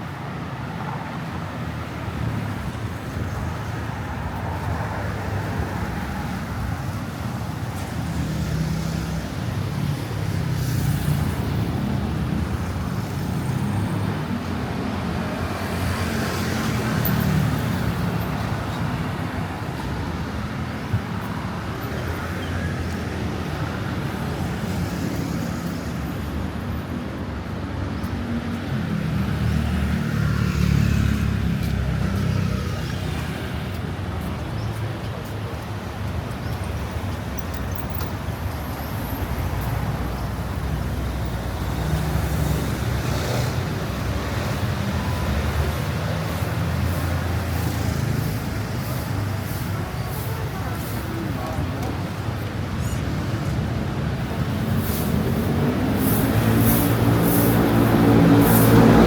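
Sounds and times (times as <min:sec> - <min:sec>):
vehicles passing: 0:00.0 - 0:59.0.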